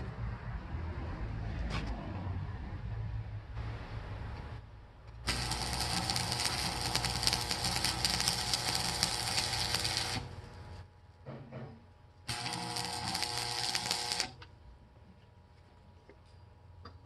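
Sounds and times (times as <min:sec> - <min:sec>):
welding arc crackling: 0:05.2 - 0:10.8, 0:12.3 - 0:14.5.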